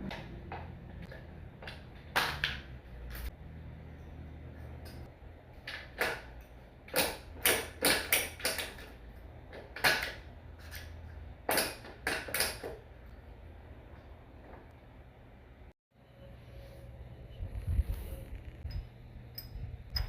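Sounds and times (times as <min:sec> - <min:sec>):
low steady hum: 0:12.8 - 0:20.0.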